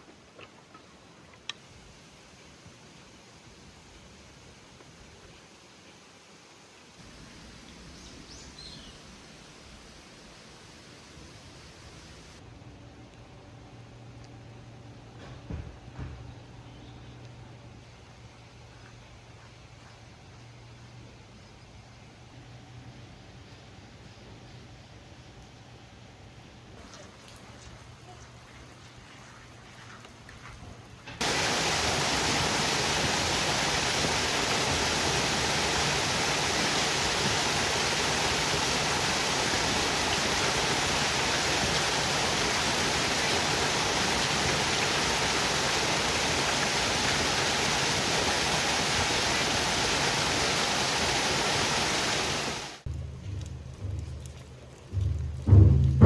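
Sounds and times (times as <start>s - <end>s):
heavy rain pouring: 31.2s - 56.0s.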